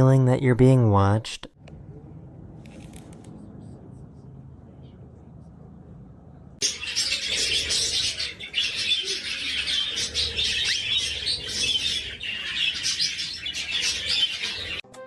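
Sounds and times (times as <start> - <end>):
small birds twittering: 6.6 - 14.8.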